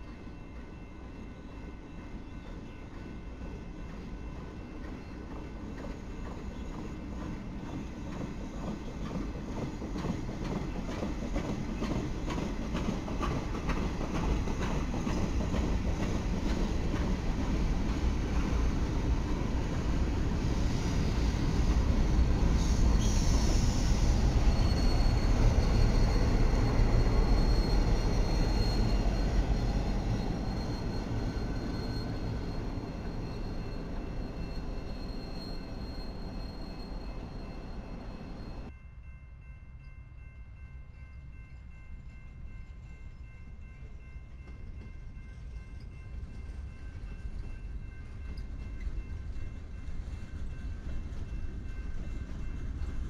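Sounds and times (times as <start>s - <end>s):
train rumbling past: 0.0s - 53.0s
high wheel squeal: 22.5s - 38.7s.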